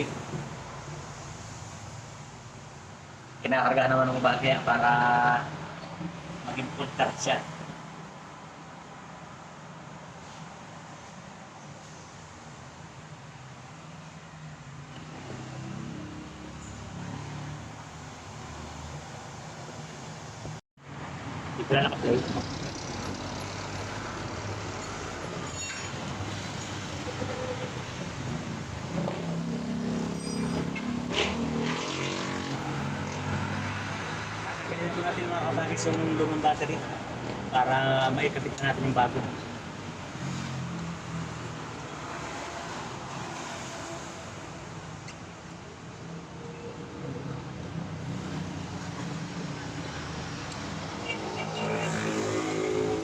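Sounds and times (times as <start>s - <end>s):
road traffic noise: 0.0s - 53.0s
vehicle engine hum: 14.9s - 43.3s.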